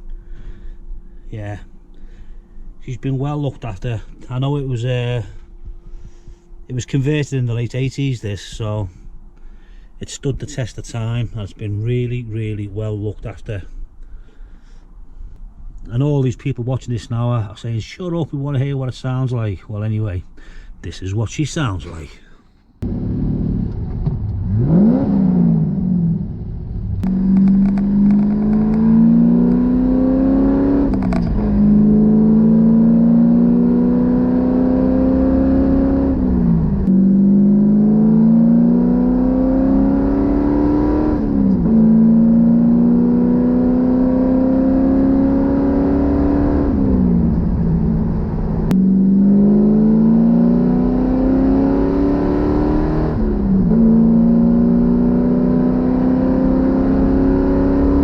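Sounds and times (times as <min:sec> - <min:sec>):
car engine revving: 0:22.8 - 0:58.0.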